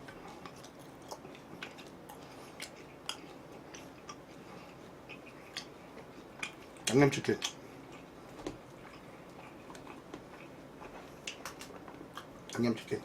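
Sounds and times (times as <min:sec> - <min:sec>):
person chewing food: 0:00.0 - 0:12.6
clicking mouth sounds: 0:05.1 - 0:05.7, 0:06.4 - 0:07.6.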